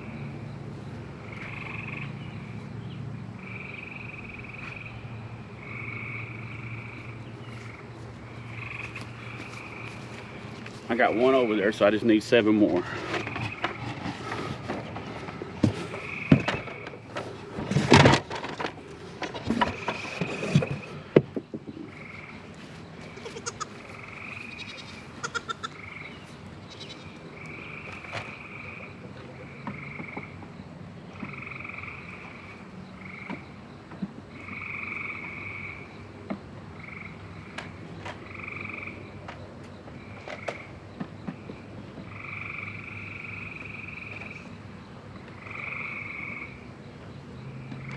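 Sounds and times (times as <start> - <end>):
frogs calling: 0.0 - 47.9
knocks and clattering: 12.7 - 21.9.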